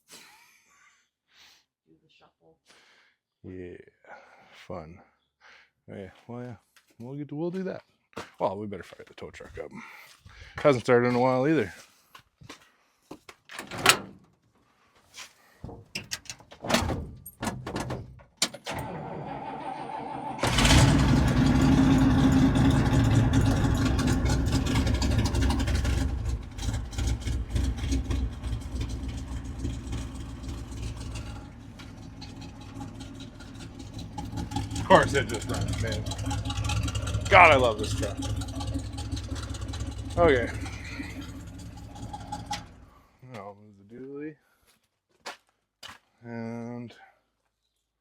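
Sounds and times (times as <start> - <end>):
truck engine starting and idling: 16.8 - 43.1.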